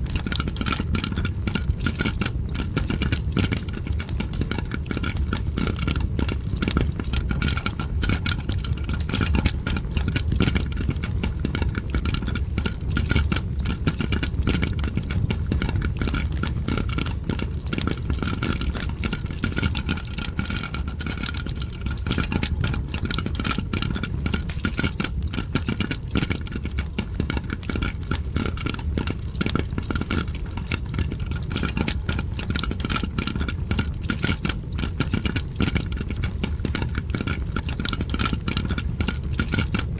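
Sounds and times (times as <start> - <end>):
popcorn popping: 0.0 - 39.9
fireplace crackling: 12.2 - 25.1.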